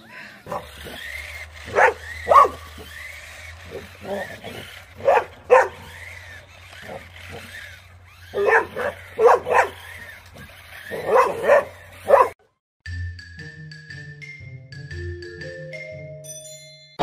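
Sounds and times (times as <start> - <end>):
pets yelping and barking: 0.0 - 12.4
xylophone-like tune: 12.9 - 17.0.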